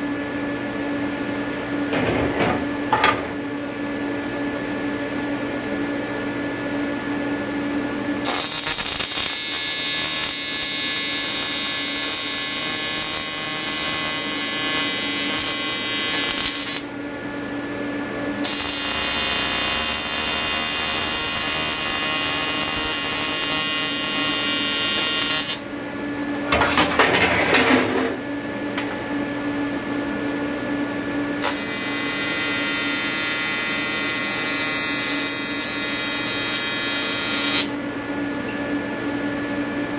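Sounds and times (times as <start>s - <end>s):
welding arc buzzing: 8.2s - 16.9s, 18.4s - 25.7s, 31.4s - 37.8s
welding machine humming: 8.2s - 17.0s, 18.4s - 25.7s, 31.4s - 37.9s.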